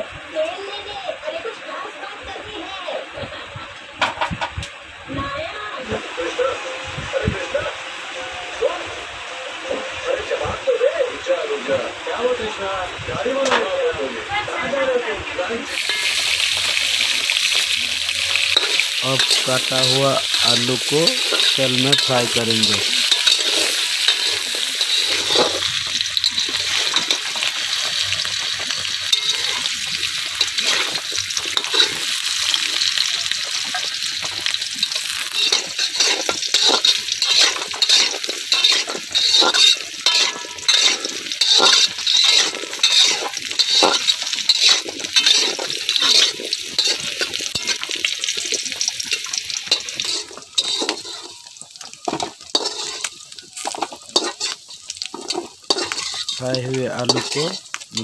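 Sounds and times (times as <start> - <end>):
potatoes sizzling in oil: 0.0 - 58.0
metal spatula scraping pan: 15.7 - 58.0.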